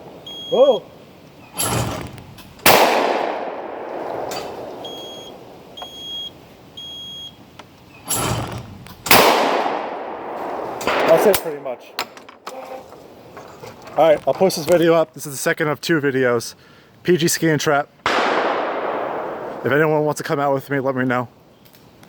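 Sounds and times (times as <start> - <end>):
short high beeps: 0.3 - 0.8, 4.8 - 7.4
weaker bang: 1.5 - 5.9, 8.1 - 13.4
shotgun shots echoing: 2.6 - 5.8, 9.0 - 13.4, 18.0 - 20.2.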